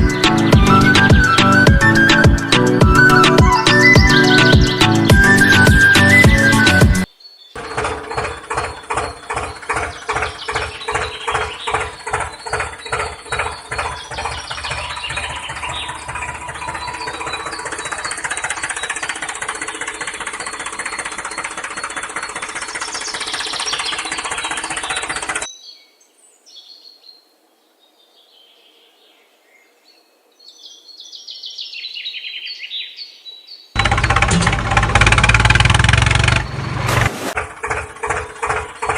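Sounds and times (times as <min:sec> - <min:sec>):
engine chugging: 0:00.0 - 0:25.5, 0:33.8 - 0:38.9.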